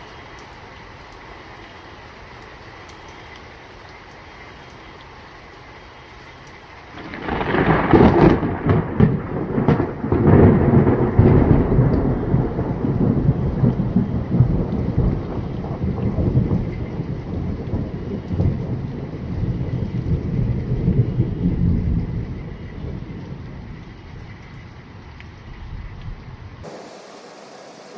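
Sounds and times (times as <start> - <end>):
sharp thunder cracks: 7.0 - 18.8
thunder crackling clap: 7.0 - 23.8
rolling thunder rumble: 7.0 - 26.6.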